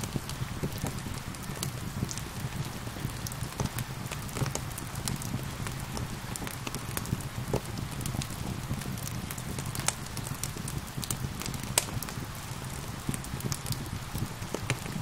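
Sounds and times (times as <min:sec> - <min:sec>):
gentle rain: 0:00.0 - 0:15.0
wood fire crackling: 0:00.0 - 0:15.0.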